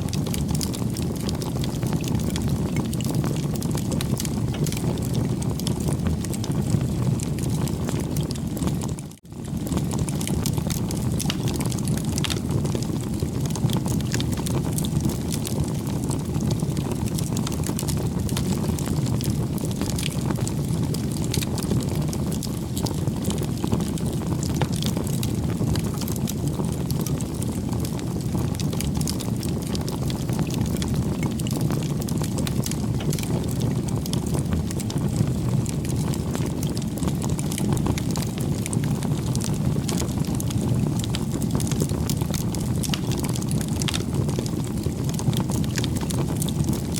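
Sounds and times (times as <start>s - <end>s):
bonfire crackling and popping: 0.0s - 46.9s.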